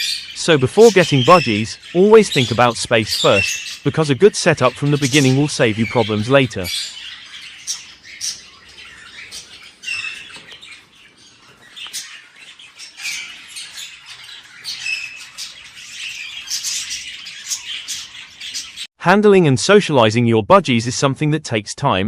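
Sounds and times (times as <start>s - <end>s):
budgies chirping and squawking: 0.0s - 18.9s.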